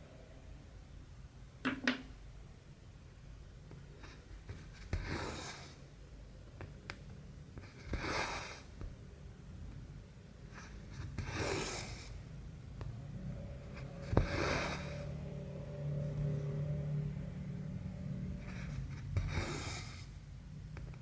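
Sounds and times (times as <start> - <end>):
thread rasping through fabric: 10.5 - 12.2, 13.6 - 15.2, 18.4 - 20.2.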